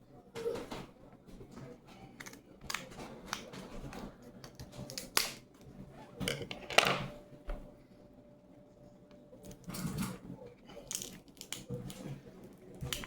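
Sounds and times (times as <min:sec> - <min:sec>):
crab shell cracking: 0:10.8 - 0:13.0.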